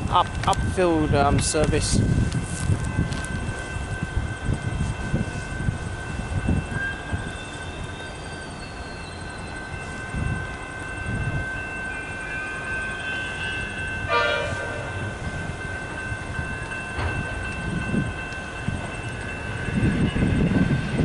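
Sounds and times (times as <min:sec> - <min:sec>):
electric train running: 0:00.0 - 0:21.0
train horn blast: 0:13.0 - 0:15.1.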